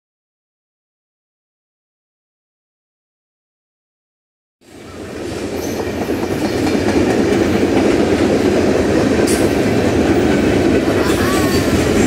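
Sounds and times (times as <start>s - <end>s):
diesel locomotives rumbling: 4.6s - 12.0s.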